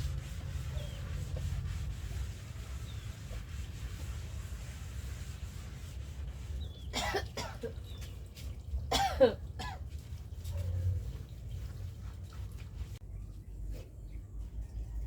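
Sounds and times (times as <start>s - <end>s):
person coughing: 6.9s - 7.8s, 8.9s - 9.8s.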